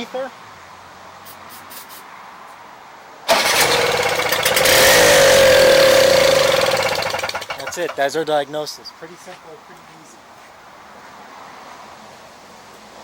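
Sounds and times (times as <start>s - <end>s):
snowblower engine starting and running: 3.3s - 8.2s.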